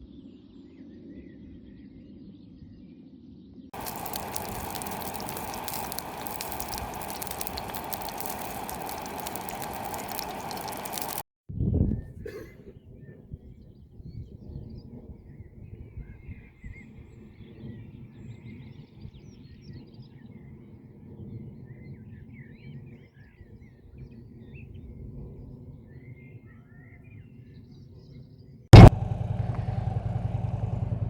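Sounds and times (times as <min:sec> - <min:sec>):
low uneven rumble: 0:03.8 - 0:11.2, 0:28.8 - 0:31.0
small birds chirping: 0:03.8 - 0:11.2.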